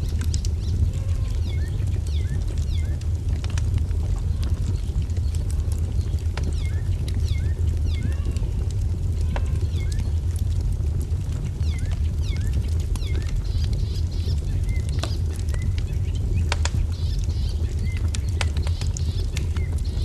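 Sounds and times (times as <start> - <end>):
small birds chirping: 0.0 - 20.0
wood fire crackling: 0.0 - 20.0.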